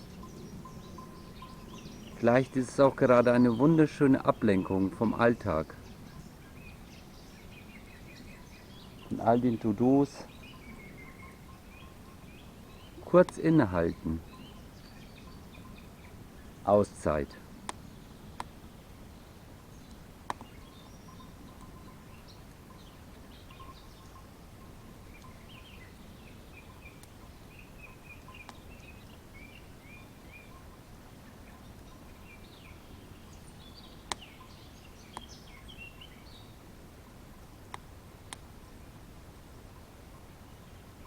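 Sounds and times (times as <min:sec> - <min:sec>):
small birds chirping: 0:00.0 - 0:39.0
campfire crackling: 0:08.8 - 0:40.6.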